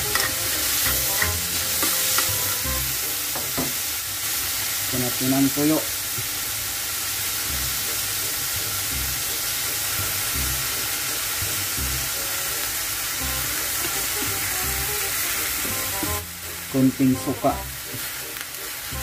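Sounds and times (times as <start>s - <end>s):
meat sizzling in oil: 0.0s - 19.0s
faint background music: 7.2s - 19.0s.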